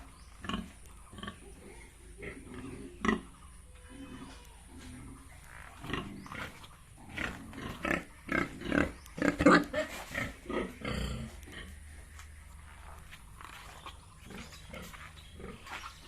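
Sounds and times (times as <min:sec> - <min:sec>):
pigs calling: 0:00.0 - 0:11.8.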